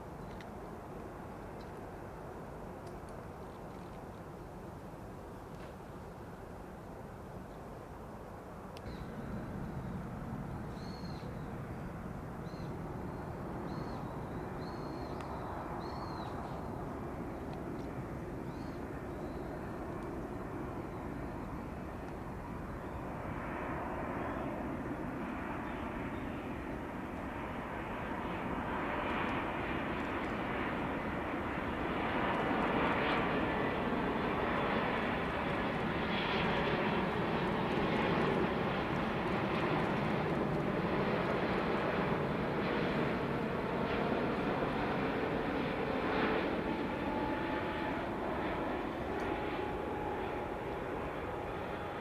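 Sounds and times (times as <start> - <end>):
jet engines rumbling: 0.0 - 52.0.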